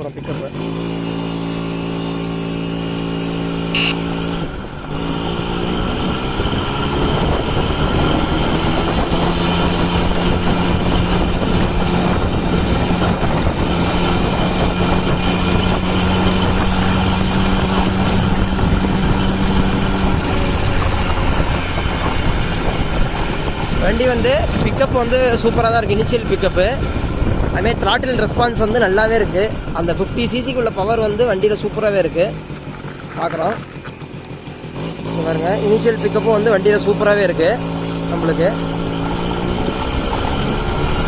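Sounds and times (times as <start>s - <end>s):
moped engine accelerating: 0.0s - 41.0s
wind noise: 3.0s - 31.5s.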